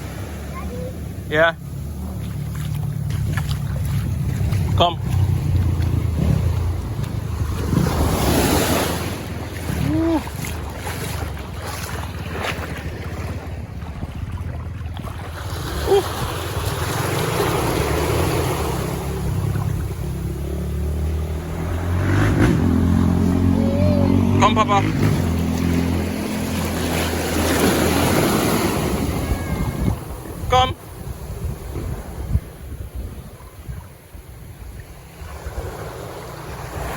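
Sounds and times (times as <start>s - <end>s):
surf washing onto beach: 0.0s - 36.9s
wind buffeting microphone: 2.1s - 17.9s, 28.8s - 36.9s.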